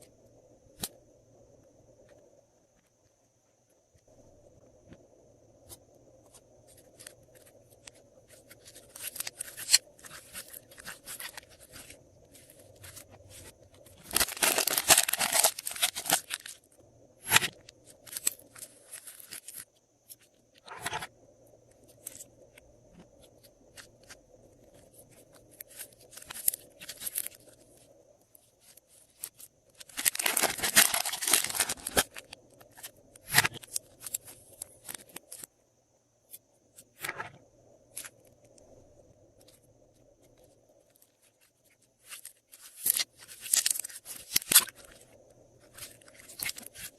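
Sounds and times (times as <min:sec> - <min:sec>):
slime crackling and popping: 0:14.0 - 0:16.6, 0:29.8 - 0:33.6.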